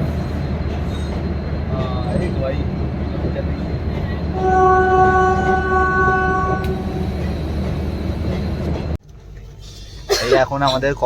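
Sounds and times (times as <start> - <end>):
train rumbling: 0.0 - 11.0
train horn: 4.3 - 7.3.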